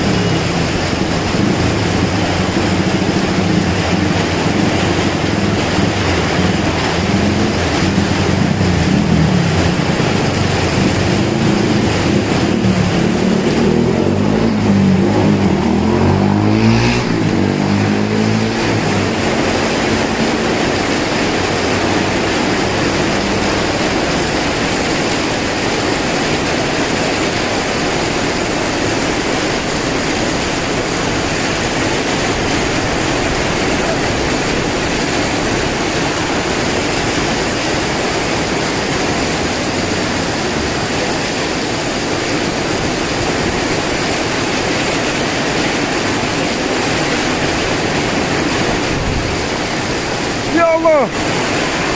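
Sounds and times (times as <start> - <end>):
heavy rain: 0.0 - 51.9
strong wind: 0.0 - 51.9
low droning tone: 0.1 - 21.0.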